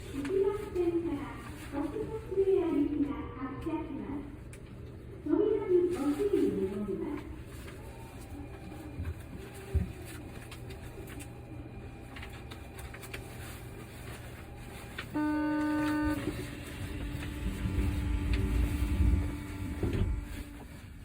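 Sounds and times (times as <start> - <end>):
train rumble: 0.0 - 21.0
horn-like signal tone: 15.1 - 20.6.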